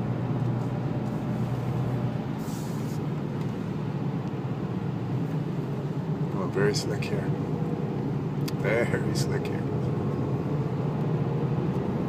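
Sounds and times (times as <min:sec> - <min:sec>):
low engine drone: 0:00.0 - 0:12.0
road and tyre noise: 0:00.0 - 0:12.0
brief hiss: 0:02.4 - 0:03.0.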